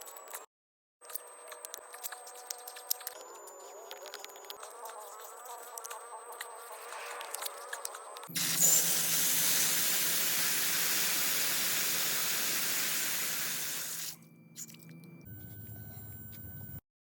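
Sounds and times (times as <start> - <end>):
loud spraying hiss: 8.3 - 14.2.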